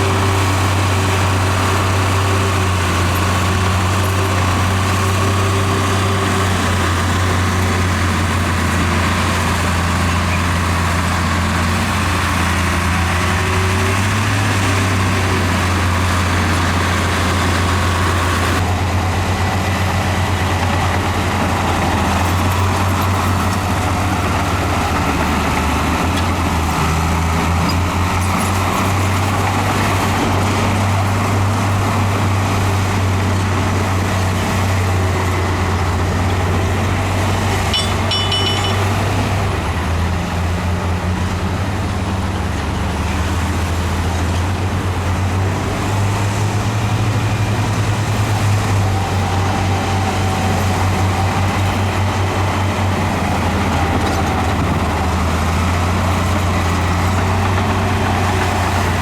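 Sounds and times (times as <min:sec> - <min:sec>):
heavy diesel engines droning: 0:00.0 - 0:59.0.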